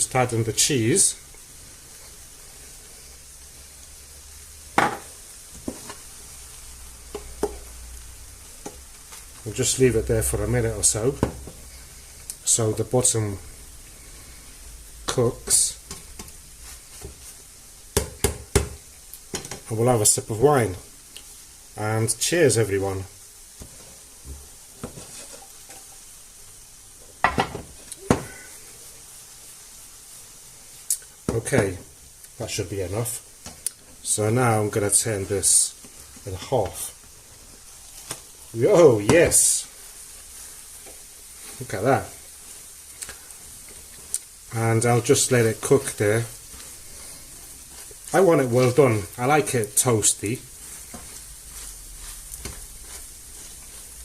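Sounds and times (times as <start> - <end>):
omelette sizzling in a frying pan: 0.0 - 54.0.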